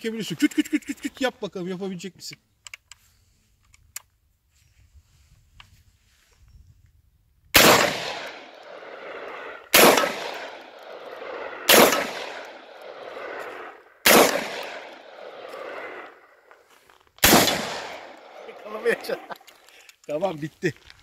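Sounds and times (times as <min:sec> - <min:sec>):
shotgun shots echoing: 0:07.6 - 0:16.1, 0:17.2 - 0:19.1.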